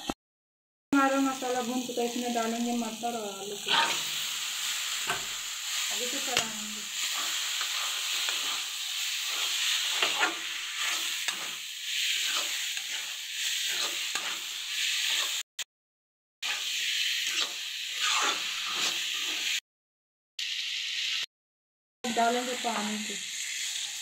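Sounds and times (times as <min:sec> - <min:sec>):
vegetables sizzling in oil: 0:01.0 - 0:15.5, 0:16.4 - 0:19.6, 0:20.4 - 0:21.3, 0:22.1 - 0:24.0
metal spatula scraping pan: 0:03.5 - 0:15.4, 0:16.4 - 0:19.6.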